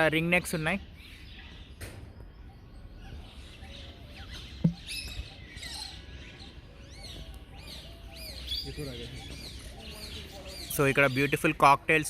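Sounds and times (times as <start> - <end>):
birds chirping and calling: 0.0 - 12.0
brief thump: 4.6 - 4.9.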